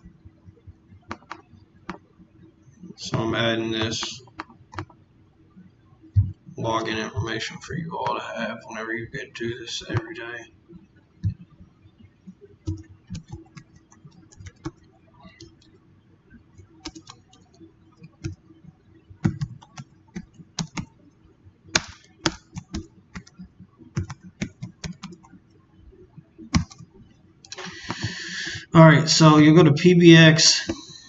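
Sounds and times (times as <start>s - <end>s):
computer keyboard typing: 1.0s - 2.0s, 12.6s - 15.7s, 16.6s - 18.4s, 19.2s - 21.0s, 21.7s - 25.4s, 26.5s - 28.4s.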